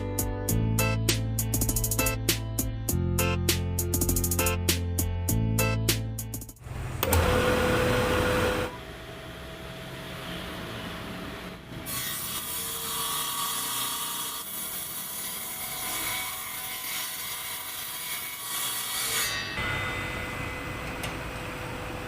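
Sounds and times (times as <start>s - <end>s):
table saw cutting wood: 6.7s - 22.0s.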